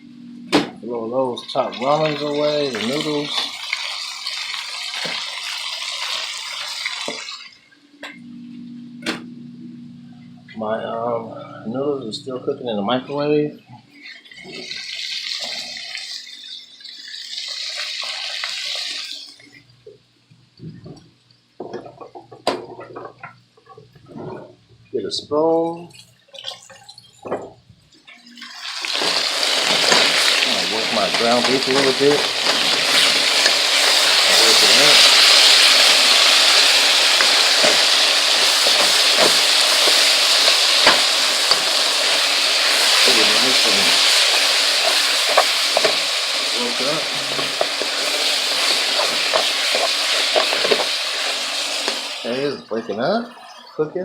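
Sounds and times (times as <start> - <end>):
meat sizzling in a hot pan: 1.4 - 7.6, 14.0 - 19.4, 28.3 - 52.6
water running from a tap: 1.4 - 7.6, 14.1 - 19.6, 28.1 - 53.8.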